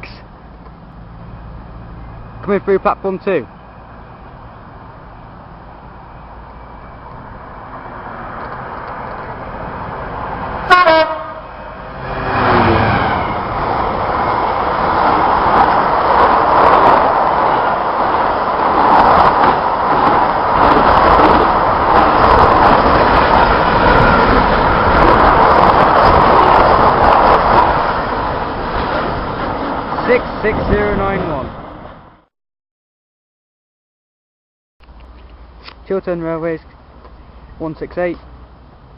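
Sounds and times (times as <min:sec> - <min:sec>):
train rumble: 0:00.0 - 0:32.2
locomotive horn toot: 0:10.6 - 0:11.6
rail clatter: 0:11.6 - 0:32.1.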